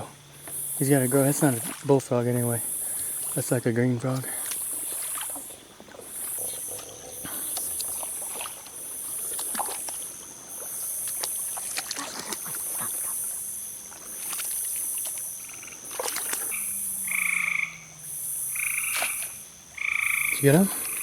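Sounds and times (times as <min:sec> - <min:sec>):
frog call: 0:00.0 - 0:03.5, 0:04.2 - 0:21.0
insects pulsing buzz: 0:00.0 - 0:21.0
wading through shallow water: 0:00.0 - 0:21.0.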